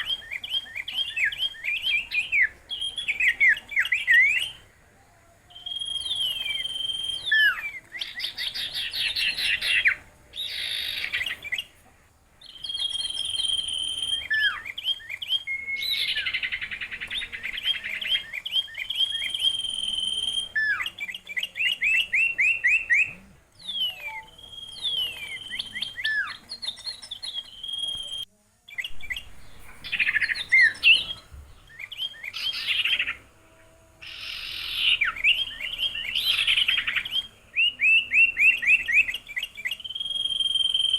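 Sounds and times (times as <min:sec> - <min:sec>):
songbird singing: 0:00.0 - 0:40.9.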